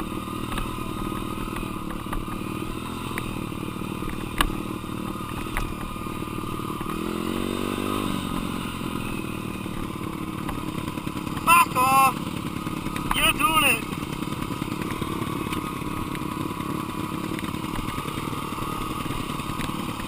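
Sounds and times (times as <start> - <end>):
dirt bike engine running: 0.0 - 20.0
clatter: 0.4 - 7.2, 13.8 - 20.0.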